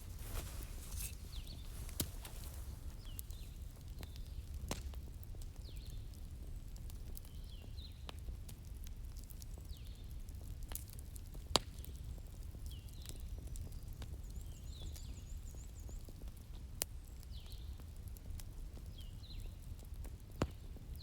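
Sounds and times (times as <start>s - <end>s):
birds chirping: 0.0s - 3.6s
wood fire crackling and popping: 0.0s - 13.7s.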